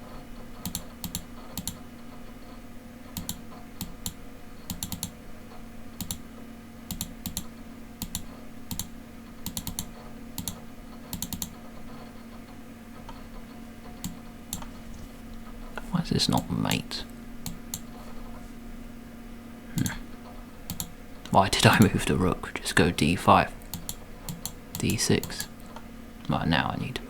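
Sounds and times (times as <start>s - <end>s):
faint steady hum: 0.0s - 27.0s
computer mouse clicks: 0.6s - 1.8s, 3.2s - 5.2s, 6.0s - 6.2s, 6.9s - 11.6s, 13.9s - 14.7s, 17.4s - 17.9s, 20.7s - 20.9s, 23.6s - 25.8s.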